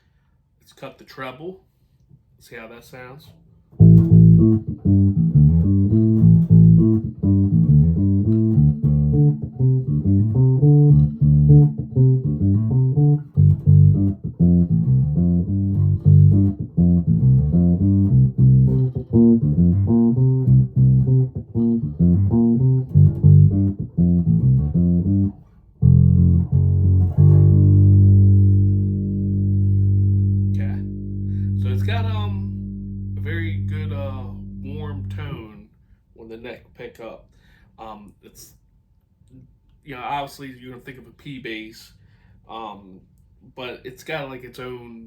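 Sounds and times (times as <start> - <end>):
bass guitar plucked notes: 3.8 - 35.5.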